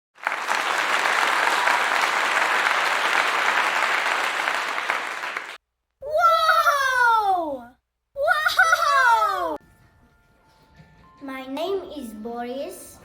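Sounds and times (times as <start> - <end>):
hands clapping: 0.2 - 5.6.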